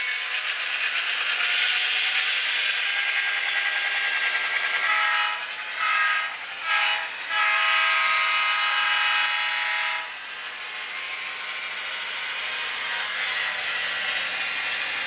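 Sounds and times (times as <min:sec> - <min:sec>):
train horn blasts: 0:04.8 - 0:10.2.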